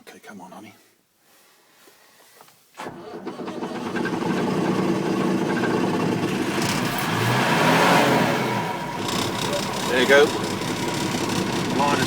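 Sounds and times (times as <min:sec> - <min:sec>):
tractor diesel engine starting: 0:02.8 - 0:12.0.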